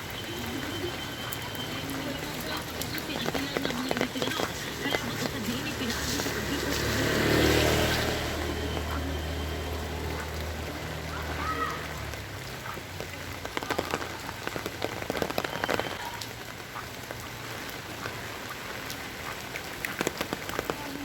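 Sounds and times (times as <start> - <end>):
vehicle engine hum: 0.0 - 15.8
heavy rain hiss: 0.0 - 21.0
raindrops clicking: 0.0 - 21.0.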